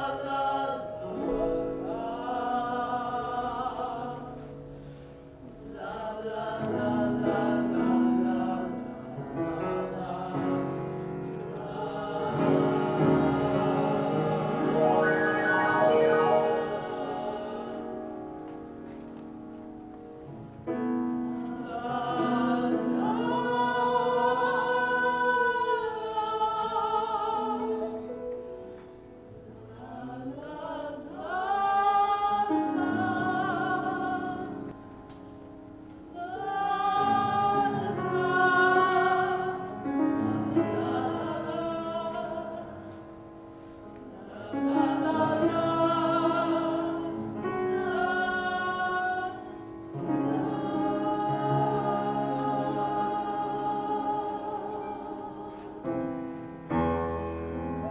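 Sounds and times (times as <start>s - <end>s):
operatic singing: 11.6s - 18.3s
sustained accompanying chords: 14.2s - 18.3s.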